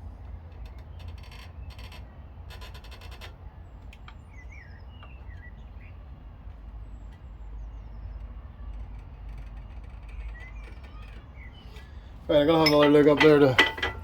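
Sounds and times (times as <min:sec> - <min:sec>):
low outdoor rumble: 0:00.0 - 0:14.0
small birds chirping: 0:03.7 - 0:13.6.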